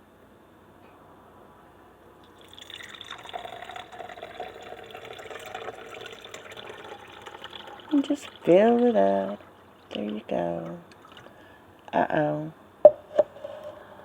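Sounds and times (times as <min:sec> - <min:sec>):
water pouring into reservoir: 0:02.3 - 0:11.5.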